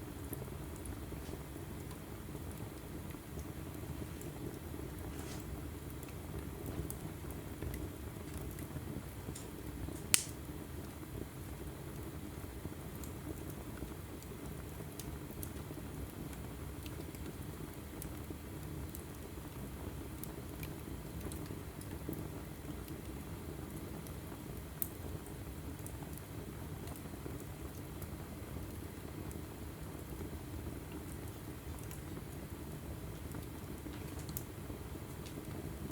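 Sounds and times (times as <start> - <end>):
fire crackling: 0.0 - 35.9
low rumble of flame: 0.0 - 35.9
loud pop of burning log: 9.4 - 10.4.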